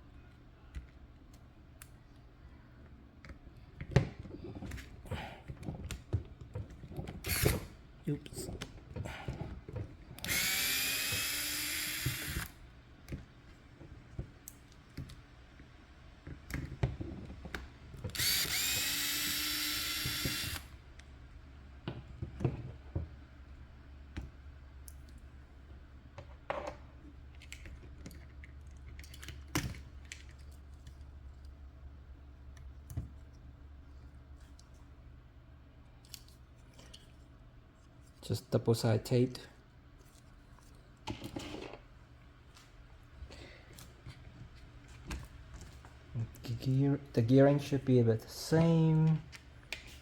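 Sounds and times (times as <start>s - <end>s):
electric screwdriver running: 7.2s - 7.7s, 10.2s - 12.6s, 18.1s - 20.7s.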